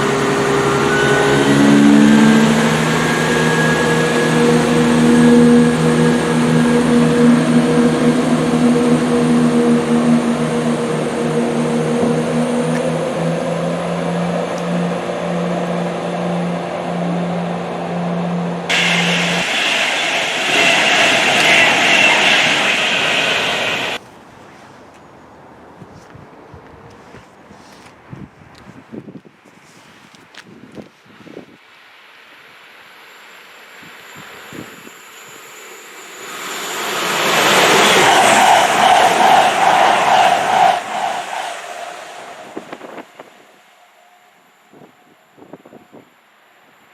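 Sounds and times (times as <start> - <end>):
engine hum: 0.0 - 24.0, 36.2 - 43.6
train rushing noise: 0.0 - 24.0, 33.8 - 46.0.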